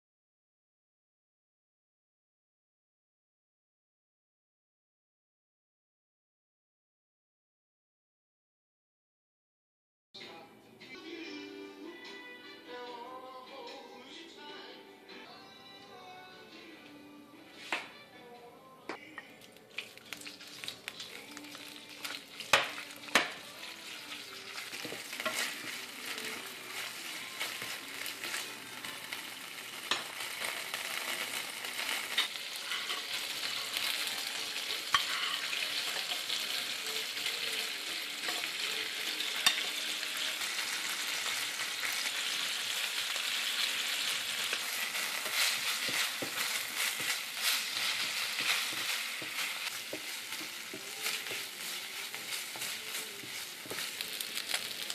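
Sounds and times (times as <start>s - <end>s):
chicken sizzling in hot oil: 19.7s - 54.9s.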